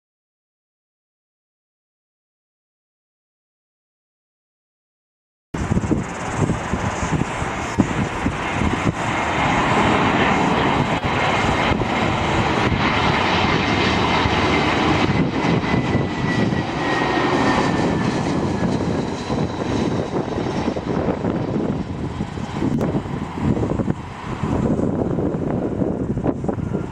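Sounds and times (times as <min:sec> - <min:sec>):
airliner engines passing: 0:05.6 - 0:26.9.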